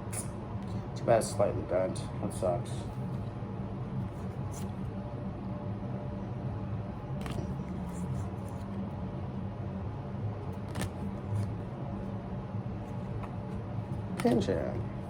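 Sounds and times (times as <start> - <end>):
steady low hum: 0.0 - 15.0
cards clicking: 7.2 - 8.7, 10.6 - 11.6, 13.1 - 14.9.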